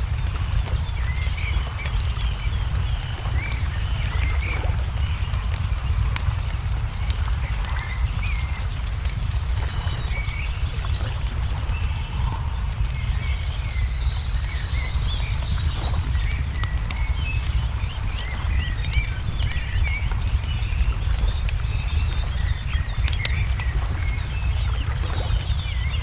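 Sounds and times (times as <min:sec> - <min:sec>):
low rumble: 0:00.0 - 0:26.0
songbirds chirping: 0:00.0 - 0:26.0
wood fire crackling: 0:00.0 - 0:26.0.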